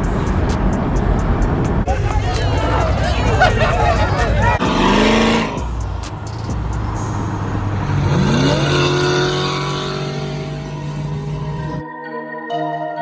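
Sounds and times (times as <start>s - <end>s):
car engine revving: 1.9s - 11.8s.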